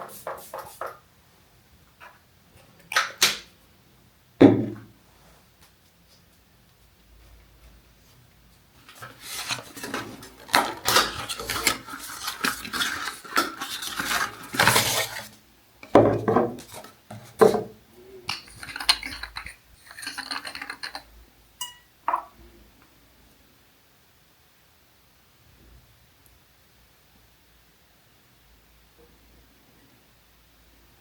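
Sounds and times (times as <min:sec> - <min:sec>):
hard containers clinking and rattling: 0:09.0 - 0:17.7, 0:18.3 - 0:22.3.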